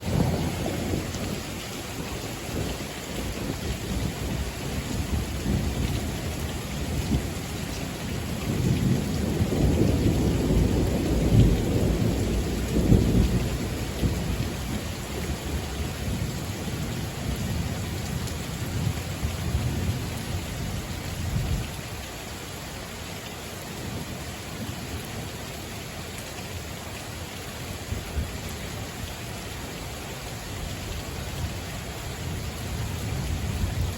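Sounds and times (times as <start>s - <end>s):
rolling thunder: 0.0s - 21.7s
rain hissing: 0.0s - 33.9s.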